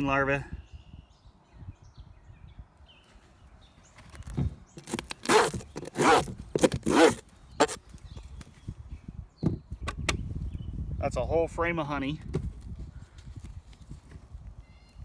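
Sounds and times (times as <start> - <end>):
hive tool scraping wooden frame: 4.8 - 7.8.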